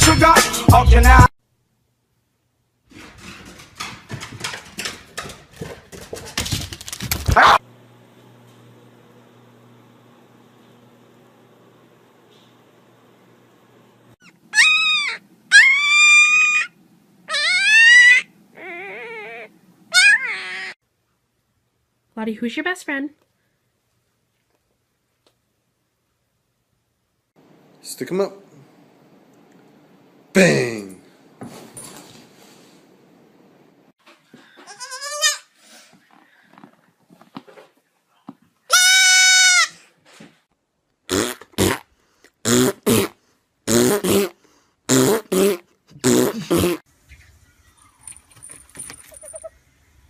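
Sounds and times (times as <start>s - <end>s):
puppy whining: 14.2s - 20.8s, 47.5s - 49.6s
goat kid bleating: 34.6s - 35.5s, 38.7s - 39.8s.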